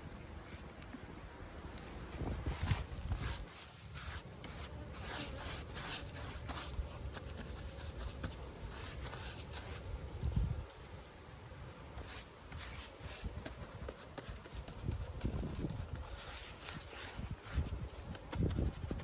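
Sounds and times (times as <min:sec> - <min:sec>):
paintbrush scratching on wood: 0:02.4 - 0:09.9, 0:12.0 - 0:19.0.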